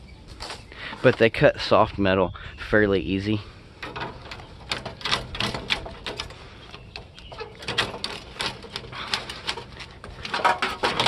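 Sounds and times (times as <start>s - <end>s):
loppers snipping metal: 3.8s - 11.0s.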